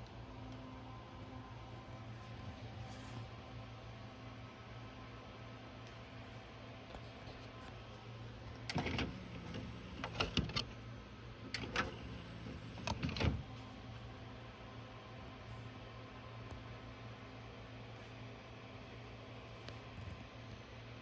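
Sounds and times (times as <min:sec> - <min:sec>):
low electrical hum: 0:00.0 - 0:21.0
mechanism clicks and clunks: 0:08.5 - 0:10.8, 0:11.4 - 0:13.6
small motor whirring: 0:08.7 - 0:10.7, 0:11.5 - 0:13.4.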